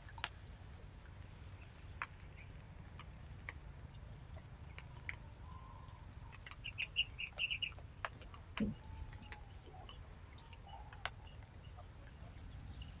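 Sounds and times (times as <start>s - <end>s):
faint clicks: 1.6s - 13.0s
bird chirping: 5.4s - 7.8s, 8.5s - 13.0s.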